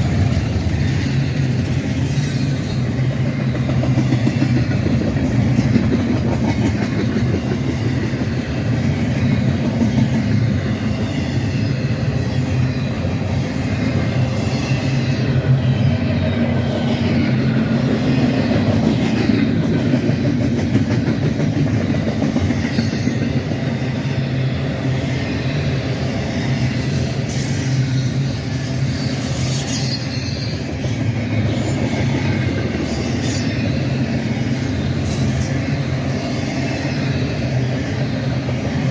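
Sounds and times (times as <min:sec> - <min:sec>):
high wheel squeal: 0:00.0 - 0:04.7, 0:22.7 - 0:38.5
train wheels clacking over rails: 0:00.0 - 0:38.9.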